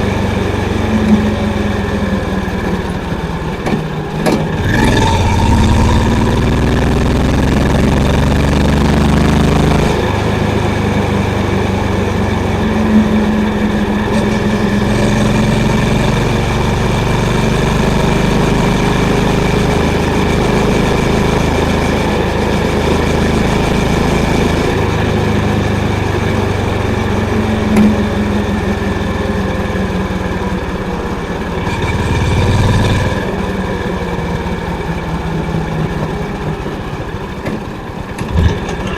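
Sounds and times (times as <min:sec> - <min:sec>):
motorcycle engine thumping: 0:37.4 - 0:38.9.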